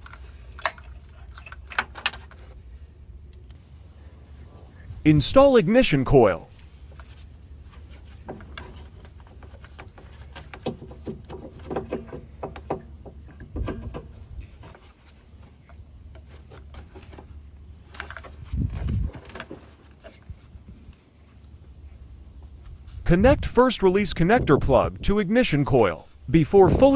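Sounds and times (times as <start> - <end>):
plastic rubbing: 6.5 - 23.1.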